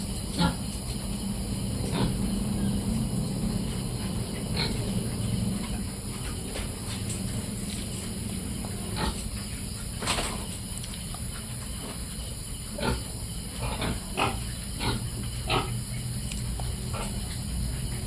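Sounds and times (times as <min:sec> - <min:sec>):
steady low hum: 0:00.0 - 0:18.0
piglets grunting and squealing: 0:00.4 - 0:00.6, 0:01.8 - 0:02.8, 0:08.8 - 0:09.4, 0:12.7 - 0:15.9.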